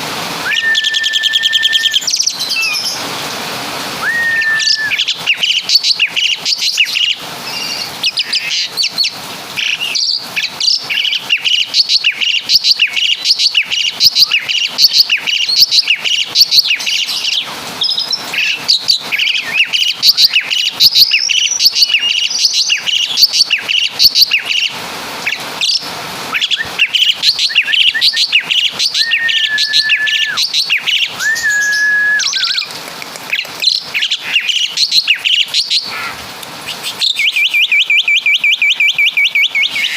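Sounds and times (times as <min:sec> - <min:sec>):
long even bird whistles: 0:00.4 - 0:03.0, 0:04.0 - 0:09.0, 0:25.6 - 0:32.7, 0:33.7 - 0:39.9
bird chirps and trills: 0:00.5 - 0:03.1, 0:04.0 - 0:39.9.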